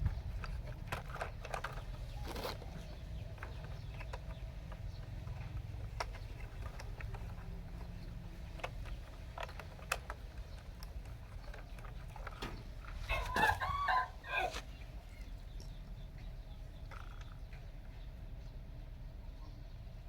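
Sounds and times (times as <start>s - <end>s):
rooster crowing: 13.1s - 14.6s.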